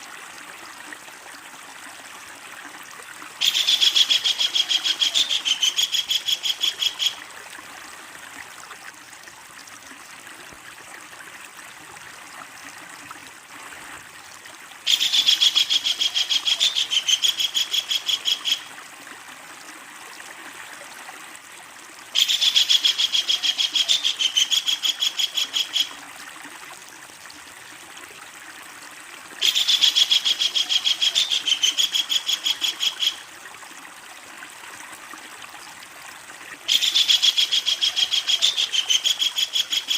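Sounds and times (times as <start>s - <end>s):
rushing stream: 0.0s - 39.9s
kingfisher chattering call: 3.4s - 7.2s, 14.9s - 18.6s, 22.2s - 25.9s, 29.4s - 33.2s, 36.7s - 39.9s.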